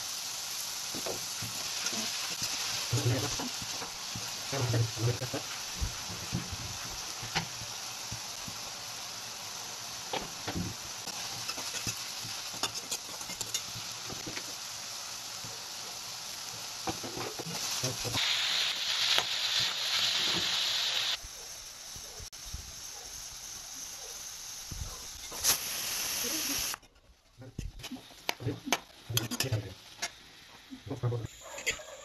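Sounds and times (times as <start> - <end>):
curry sizzling in a pan: 0.0 - 26.8, 27.8 - 32.0
spoon scraping a pan: 11.1 - 14.5, 29.1 - 30.2, 31.4 - 32.0.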